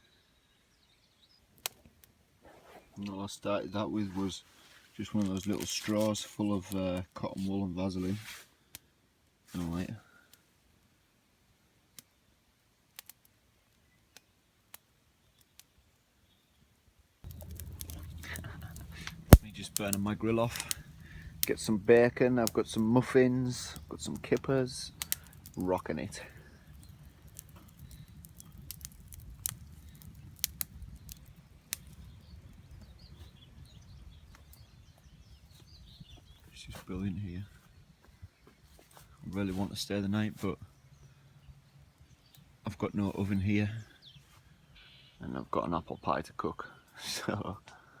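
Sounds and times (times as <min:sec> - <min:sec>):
campfire pops and snaps: 0:01.6 - 0:02.2, 0:12.9 - 0:13.4, 0:14.1 - 0:15.8, 0:17.2 - 0:34.7
low steady rumble: 0:17.3 - 0:34.3
faint bird chirps: 0:29.7 - 0:39.7, 0:40.3 - 0:46.1.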